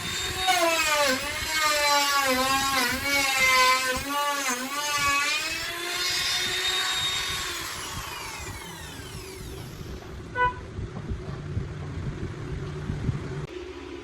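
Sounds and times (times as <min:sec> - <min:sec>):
electric router motor winding down: 0:00.0 - 0:10.3
low rumble: 0:08.8 - 0:14.0.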